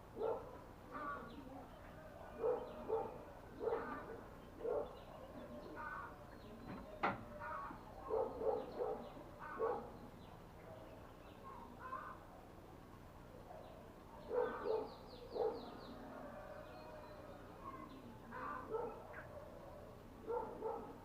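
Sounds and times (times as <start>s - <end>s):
animal calls: 2.2s - 6.2s, 7.4s - 10.0s, 14.2s - 21.0s.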